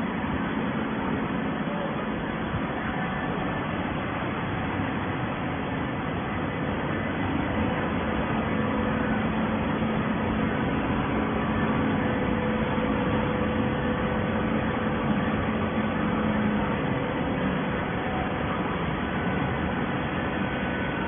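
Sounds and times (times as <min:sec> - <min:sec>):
baling press machine drone: 0:00.0 - 0:21.0.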